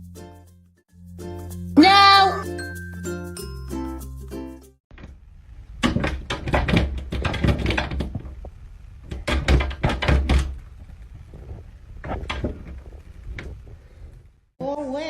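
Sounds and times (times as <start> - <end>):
rapid thuds and knocks: 5.8 - 14.0.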